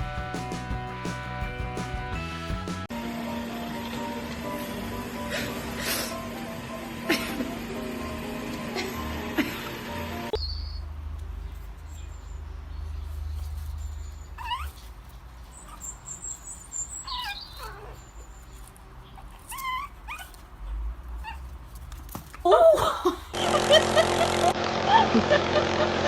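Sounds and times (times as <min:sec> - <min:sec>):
dog whimpering: 0:14.4 - 0:14.8, 0:17.0 - 0:18.3, 0:19.2 - 0:20.4.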